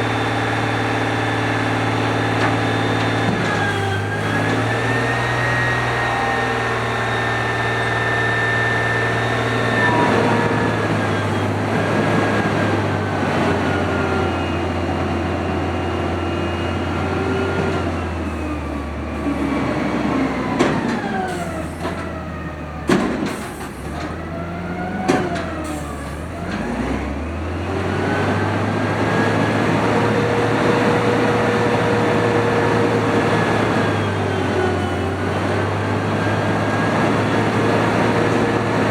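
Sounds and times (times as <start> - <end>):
garbage truck engine running: 0.0 - 38.9
hydraulic whine: 0.0 - 38.9.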